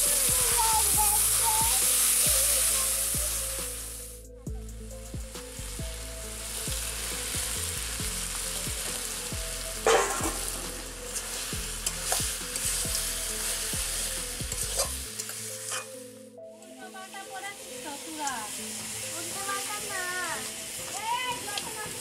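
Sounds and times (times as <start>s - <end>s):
curry sizzling in a pan: 0.0s - 4.2s, 5.3s - 16.1s, 17.2s - 22.0s
metal ladle scraping pan: 9.8s - 16.0s.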